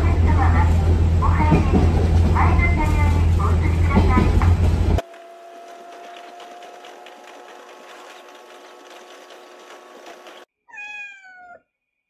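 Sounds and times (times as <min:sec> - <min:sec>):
railcar running noise: 0:00.0 - 0:10.5
meow-like call: 0:10.7 - 0:11.6.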